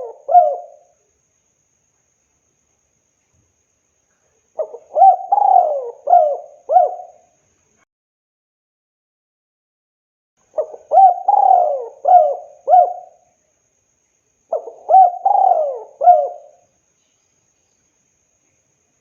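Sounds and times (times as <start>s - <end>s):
dove cooing: 0.0s - 0.8s, 4.6s - 7.2s, 10.6s - 13.2s, 14.5s - 16.6s.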